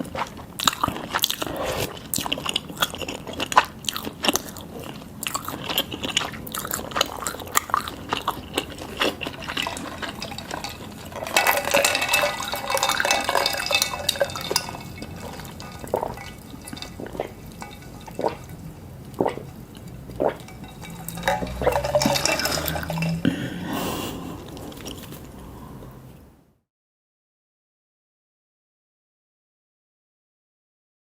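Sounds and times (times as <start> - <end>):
gurgling slurp of liquid: 0.0 - 23.2.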